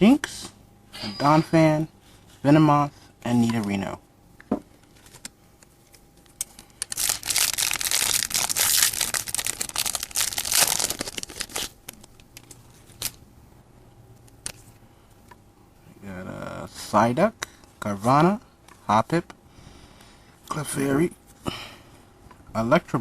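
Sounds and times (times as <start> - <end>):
foil wrapper tearing and crinkling: 6.8 - 13.2.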